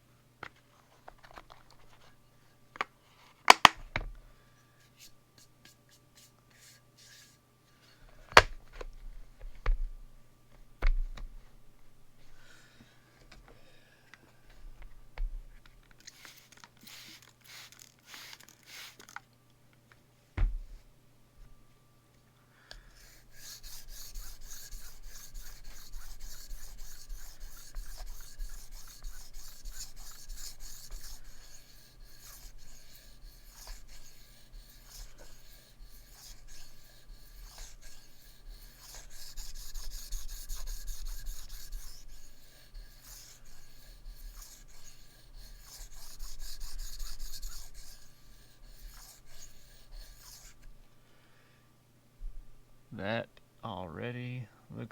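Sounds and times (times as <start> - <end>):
knife scraping on whetstone: 23.0 - 50.7.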